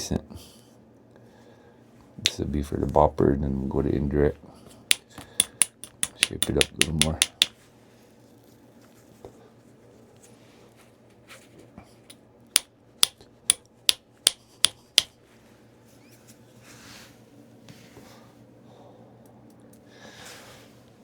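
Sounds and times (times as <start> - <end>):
stone tool tapping stone: 4.9 - 7.6, 12.6 - 15.1.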